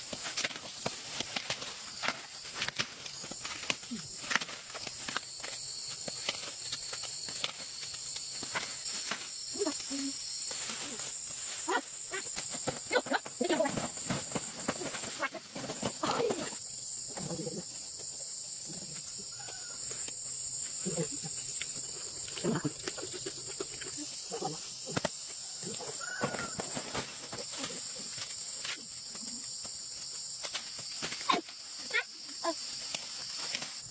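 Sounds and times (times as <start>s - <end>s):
high-pitched insect chorus: 0.0s - 33.9s.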